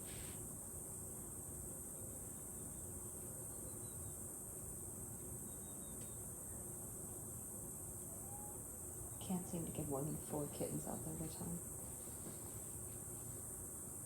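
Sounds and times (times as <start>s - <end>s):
crickets chorus: 0.0s - 14.0s
faint chirps: 3.5s - 4.3s, 5.4s - 6.8s, 8.0s - 8.8s.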